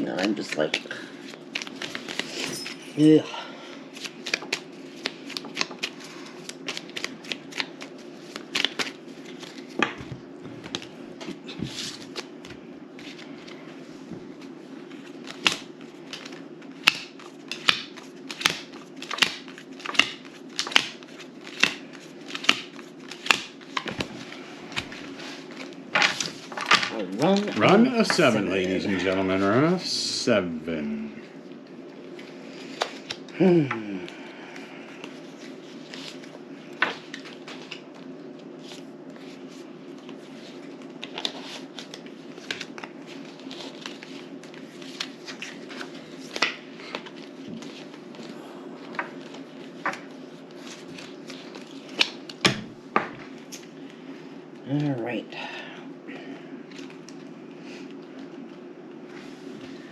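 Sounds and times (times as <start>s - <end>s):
steady low hum: 0.0s - 59.9s
playing cards snapping: 15.3s - 24.0s, 51.0s - 52.6s.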